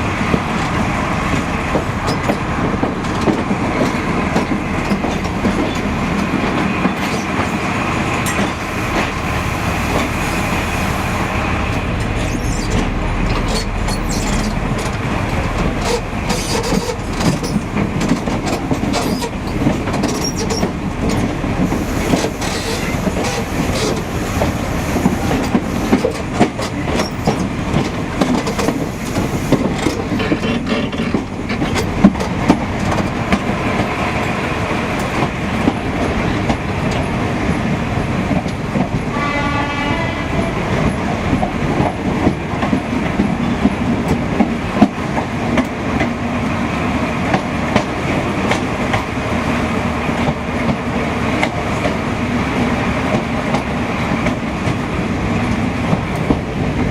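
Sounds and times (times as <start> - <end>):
train rumble: 0.0 - 56.9
wheels clacking over rail joints: 11.7 - 37.2
train horn: 39.0 - 40.8.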